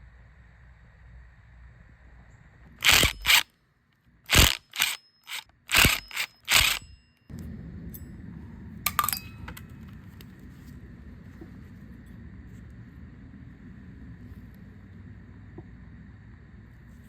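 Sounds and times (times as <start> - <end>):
sharp mechanical tool bursts: 2.8 - 3.5, 4.3 - 7.0.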